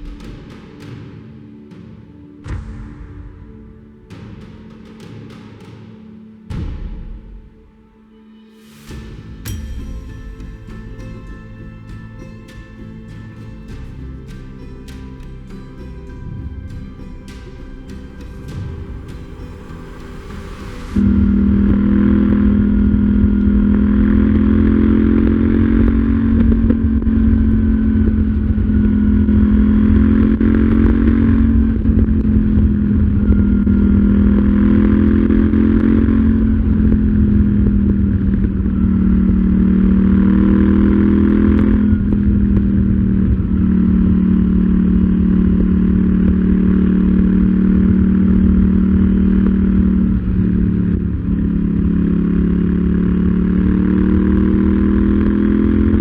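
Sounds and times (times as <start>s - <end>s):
motorcycle engine accelerating: 18.0s - 56.0s.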